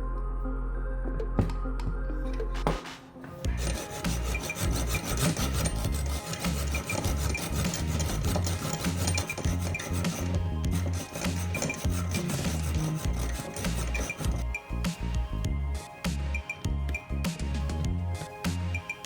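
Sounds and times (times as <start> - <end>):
low background music: 0.0 - 19.0
file rasping on workpiece: 3.5 - 14.4.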